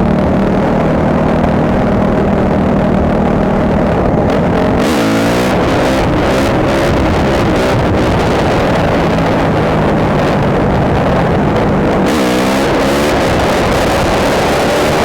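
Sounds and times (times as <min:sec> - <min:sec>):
dirt bike engine running: 0:00.0 - 0:15.0
heavy noise: 0:00.0 - 0:15.0.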